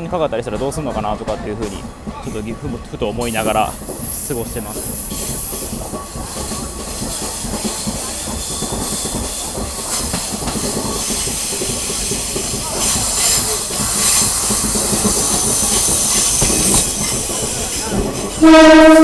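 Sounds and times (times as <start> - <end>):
train wheel and rail noise: 0.0 - 19.0
hiss: 3.3 - 18.4.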